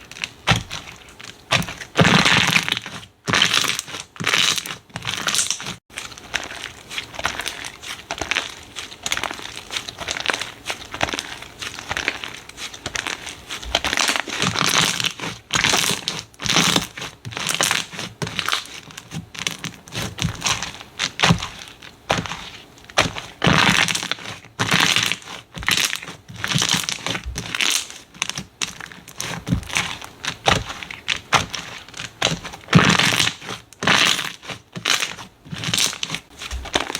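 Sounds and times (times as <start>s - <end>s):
slime squishing: 0.0s - 36.9s.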